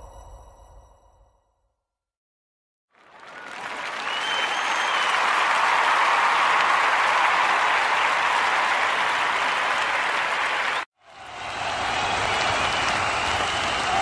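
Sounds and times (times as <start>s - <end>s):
crowd applauding: 2.9s - 14.0s.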